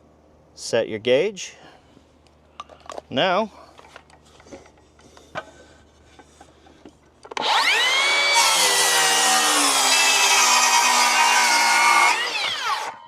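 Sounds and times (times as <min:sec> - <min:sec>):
circular saw cutting wood: 0:07.4 - 0:13.0.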